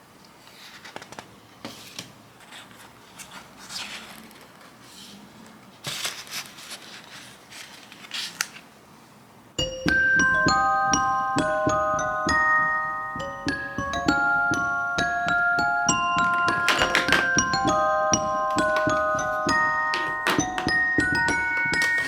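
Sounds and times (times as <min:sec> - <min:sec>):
drawing supplies rustling and tapping: 0:00.5 - 0:08.7, 0:09.6 - 0:22.0
glockenspiel-like music: 0:09.6 - 0:22.0.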